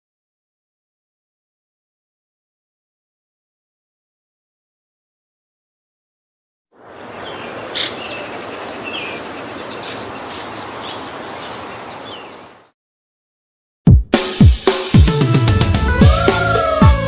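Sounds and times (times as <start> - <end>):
birds chirping and whistling: 6.8 - 12.7
outdoor ambience hiss: 6.8 - 12.7.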